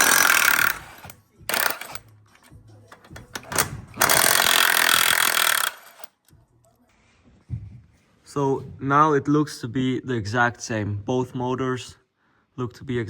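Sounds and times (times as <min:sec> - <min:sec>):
power tool running: 0:00.0 - 0:02.0, 0:03.5 - 0:06.1.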